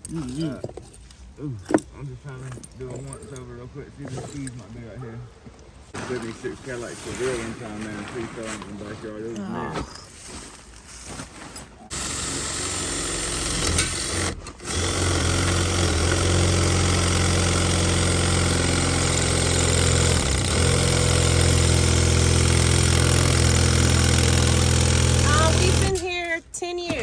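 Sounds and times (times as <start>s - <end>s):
engine starting and running: 11.9s - 26.1s.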